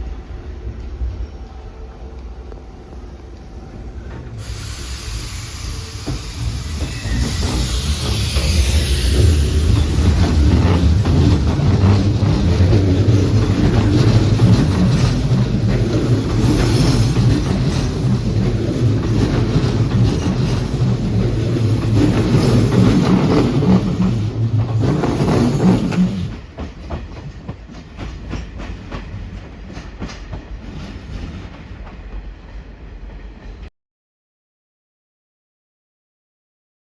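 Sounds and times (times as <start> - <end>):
electric train rumbling on rails: 0.0 - 33.7.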